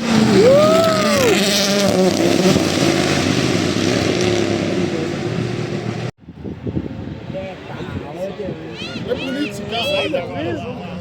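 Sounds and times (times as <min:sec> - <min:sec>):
car engine at high revs: 0:00.0 - 0:06.1.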